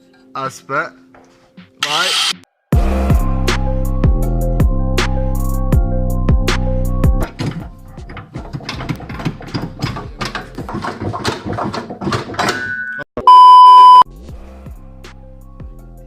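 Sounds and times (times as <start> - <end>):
electronic beep: 12.8 - 14.0.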